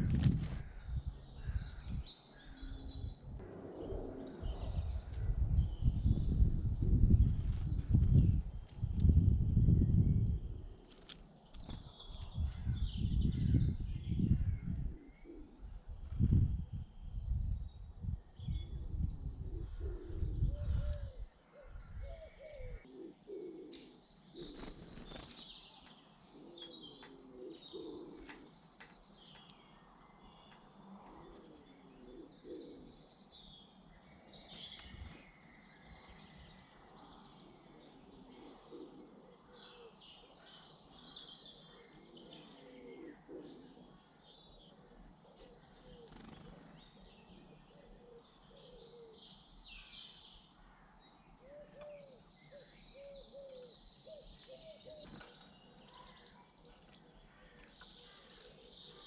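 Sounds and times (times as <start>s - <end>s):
songbirds chirping and twittering: 0.0s - 59.0s
pigeon cooing: 19.6s - 24.8s, 26.5s - 28.5s, 31.2s - 32.9s, 37.5s - 40.0s, 42.0s - 43.9s.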